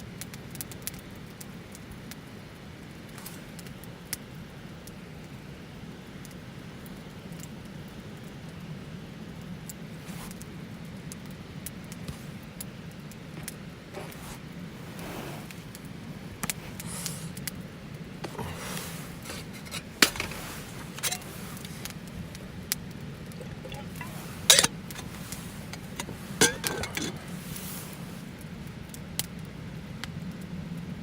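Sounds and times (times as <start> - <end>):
campfire flames rushing: 9.8 - 31.0.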